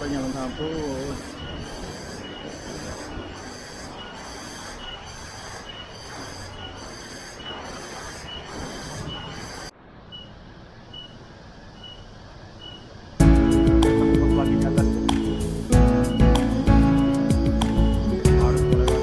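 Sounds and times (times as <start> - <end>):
faint insect ticking call: 0.0 - 19.0
shrill insects pulsing: 0.0 - 19.0
steady rushing background: 13.2 - 19.0.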